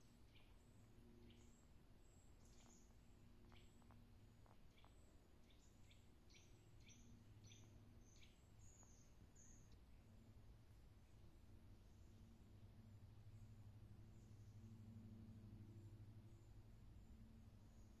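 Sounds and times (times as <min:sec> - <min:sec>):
bird chirping: 0:00.2 - 0:10.1.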